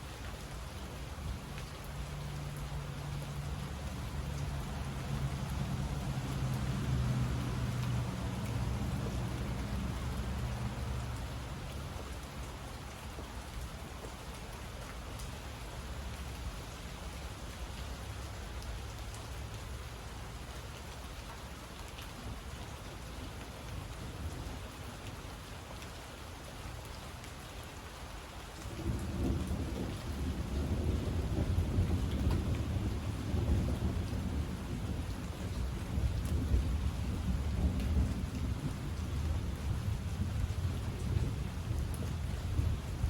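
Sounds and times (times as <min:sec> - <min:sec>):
steady rain falling: 0:00.0 - 0:43.0
thunder rumbling: 0:28.8 - 0:43.0.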